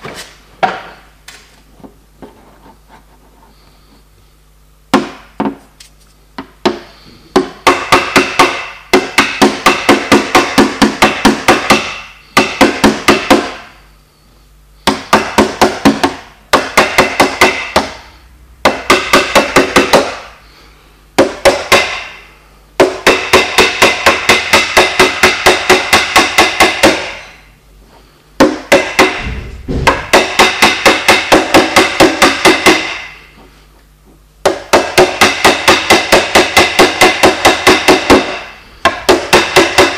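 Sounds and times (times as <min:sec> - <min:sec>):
hammer tapping metal panel: 0:28.4 - 0:32.9.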